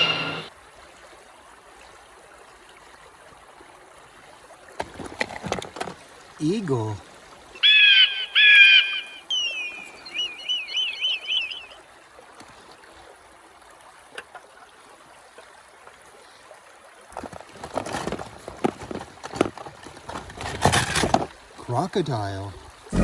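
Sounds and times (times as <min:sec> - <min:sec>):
bird whistling calls: 0:00.0 - 0:00.5, 0:07.6 - 0:11.8
stream trickling: 0:00.5 - 0:23.0.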